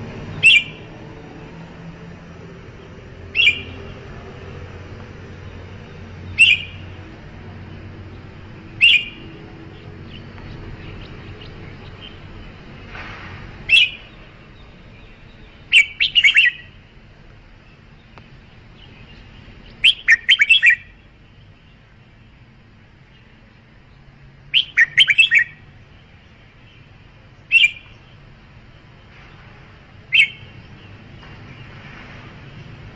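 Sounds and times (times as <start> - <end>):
bird calling: 0.3 - 0.9, 3.3 - 4.0, 6.2 - 7.0, 8.6 - 10.3, 13.7 - 14.2, 15.6 - 16.8, 18.8 - 21.0, 24.5 - 25.6, 27.4 - 28.1, 30.1 - 30.7.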